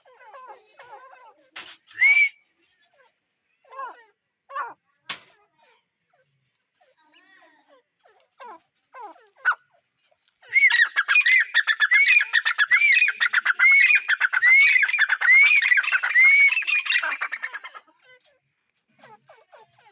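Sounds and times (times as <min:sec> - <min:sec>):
francolin whistled calls: 0:02.0 - 0:02.4, 0:10.5 - 0:17.7
harsh bird chattering: 0:10.6 - 0:17.8.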